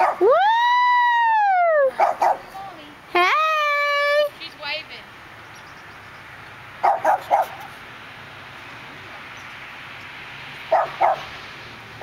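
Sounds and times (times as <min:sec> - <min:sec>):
dog barking: 0:00.0 - 0:00.2, 0:02.0 - 0:02.5, 0:06.8 - 0:07.7, 0:10.7 - 0:11.3.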